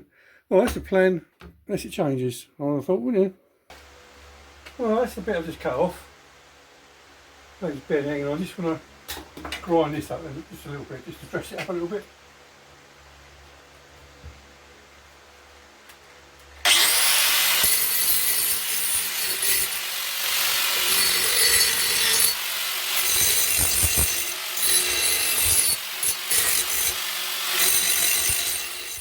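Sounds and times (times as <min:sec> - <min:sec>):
power grinder on steel: 0:16.6 - 0:29.0.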